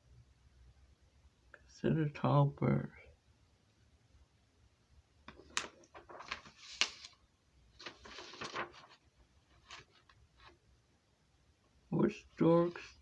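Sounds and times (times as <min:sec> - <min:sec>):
rustling of handled object: 0:05.3 - 0:07.2, 0:07.8 - 0:10.6.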